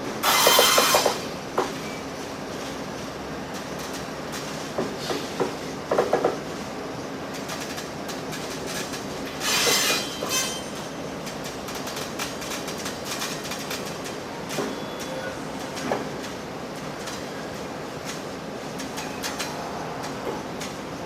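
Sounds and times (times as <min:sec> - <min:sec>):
wheel screech: 0:00.2 - 0:01.2, 0:09.4 - 0:10.7.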